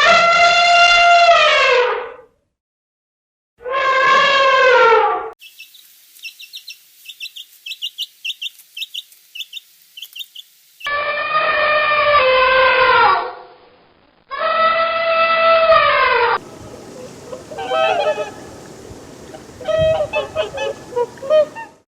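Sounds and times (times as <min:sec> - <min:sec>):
long drawn-out animal call: 0:03.6 - 0:05.2, 0:10.9 - 0:13.4, 0:14.3 - 0:21.8
quick high bird chirping: 0:05.4 - 0:10.9.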